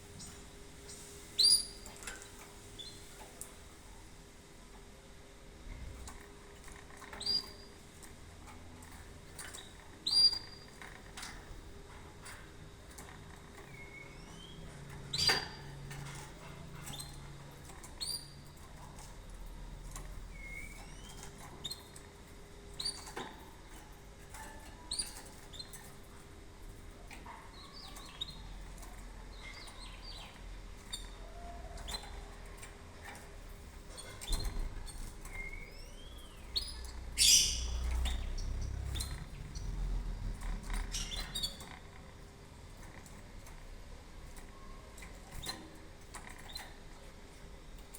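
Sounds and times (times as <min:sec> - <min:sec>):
canary chirping: 0:00.2 - 0:03.1, 0:06.7 - 0:07.9, 0:08.8 - 0:11.5, 0:12.3 - 0:26.2, 0:26.9 - 0:41.9.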